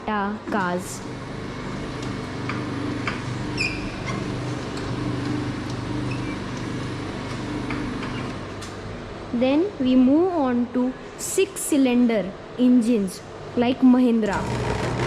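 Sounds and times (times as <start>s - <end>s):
brief squeak: 3.6s - 4.0s.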